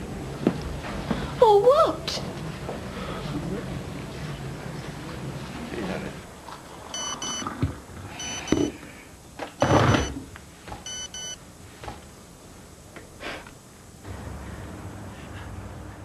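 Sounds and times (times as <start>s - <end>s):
electronic alarm double beeps: 7.0s - 7.5s, 8.2s - 8.7s, 9.6s - 10.2s, 10.8s - 11.4s.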